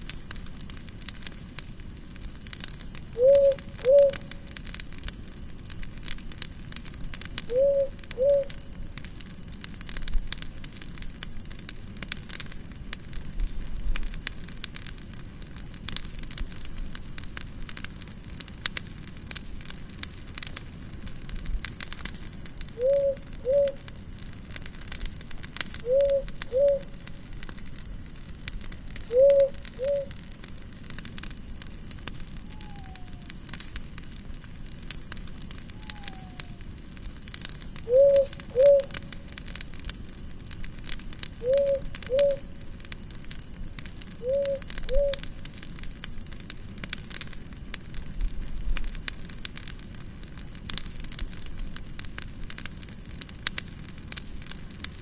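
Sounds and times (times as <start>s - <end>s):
wood fire crackling and popping: 0.0s - 55.0s
quick high chirps: 16.4s - 18.8s.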